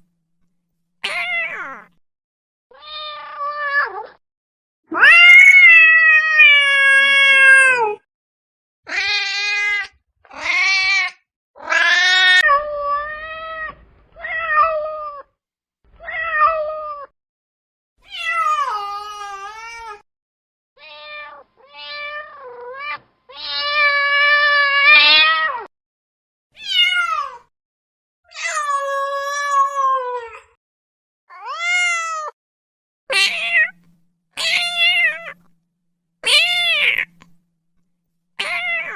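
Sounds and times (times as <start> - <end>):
cat meowing: 1.0 - 2.0, 2.7 - 4.2, 4.9 - 8.0, 8.9 - 15.3, 20.8 - 25.7, 31.3 - 32.4, 33.1 - 35.5, 36.2 - 37.3, 38.4 - 38.9.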